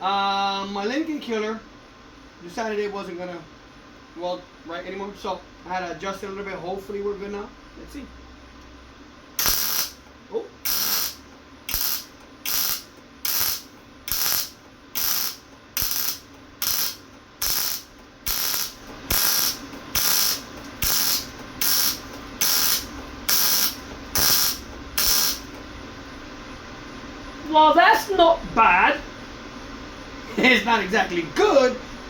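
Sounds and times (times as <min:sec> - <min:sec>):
welder arc crackling: 0:09.4 - 0:25.8.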